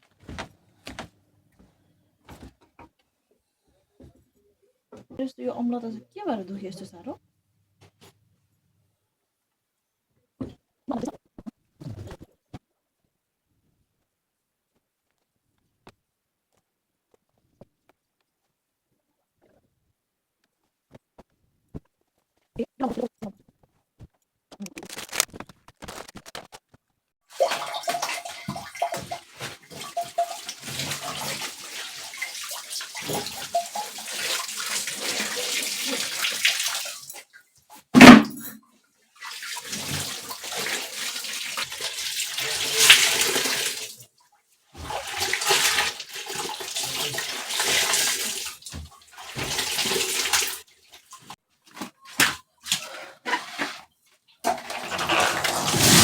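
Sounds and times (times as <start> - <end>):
water running and splashing: 27.3 - 37.4, 39.1 - 44.2, 44.8 - 51.4, 54.6 - 56.0
sharp knock: 38.0 - 38.5.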